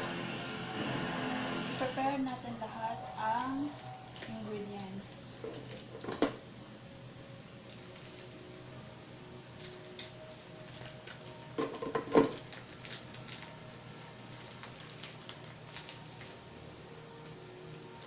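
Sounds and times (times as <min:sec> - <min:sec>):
kitchen items clattering: 0:11.6 - 0:12.6.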